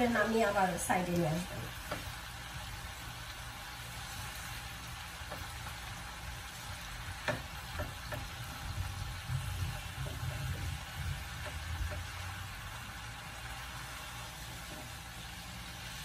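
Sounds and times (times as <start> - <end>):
vegetables sizzling in frying pan: 0.0 - 16.0
spatula knocking against pan: 5.2 - 5.8, 7.1 - 12.2.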